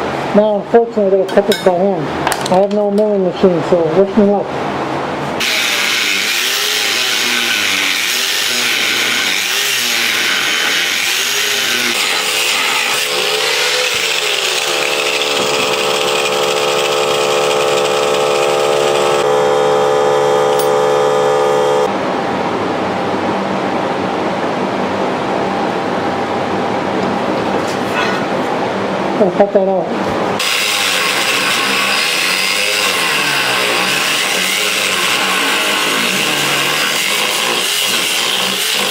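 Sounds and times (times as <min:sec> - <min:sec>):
power tool cutting aluminum: 0:05.4 - 0:21.9, 0:30.4 - 0:38.9.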